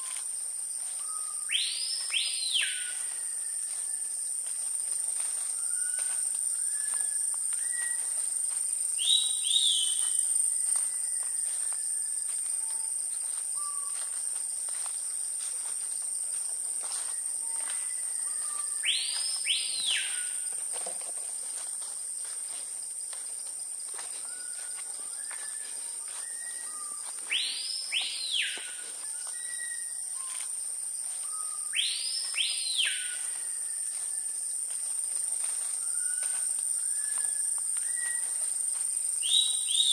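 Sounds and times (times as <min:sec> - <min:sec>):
insect chorus: 0:00.0 - 0:39.9
sweeping whistles: 0:05.5 - 0:08.2, 0:09.0 - 0:12.8, 0:24.2 - 0:30.5, 0:31.2 - 0:34.4, 0:35.8 - 0:38.4.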